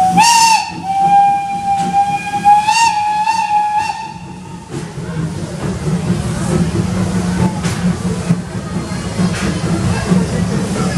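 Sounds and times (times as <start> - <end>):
steam locomotive whistle: 0.0 - 4.8
steam puffs: 0.0 - 10.9.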